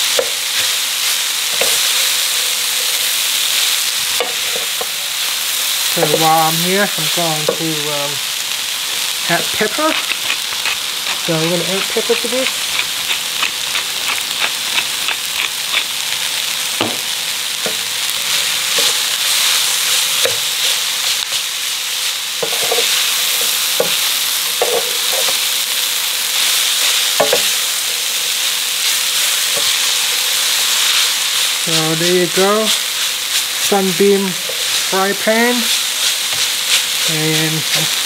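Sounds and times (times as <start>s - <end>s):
food sizzling in a pan: 0.0s - 38.0s
pepper mill grinding: 0.1s - 5.0s, 5.8s - 16.8s, 17.6s - 38.0s
wooden spatula knocking pan: 27.2s - 27.5s.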